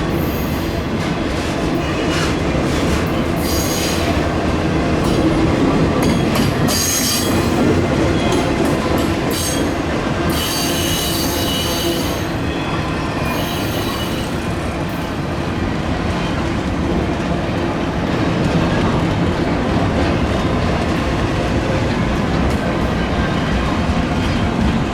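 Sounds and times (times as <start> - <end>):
train cars rumbling on rails: 0.0 - 24.9
steel wheels squealing: 1.8 - 4.2, 6.2 - 8.5, 9.3 - 15.1.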